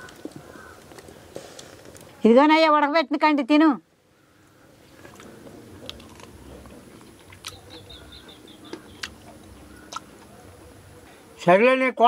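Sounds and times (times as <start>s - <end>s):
person chewing corn on the cob: 4.9s - 10.3s
sharp chewing clicks: 5.0s - 10.4s.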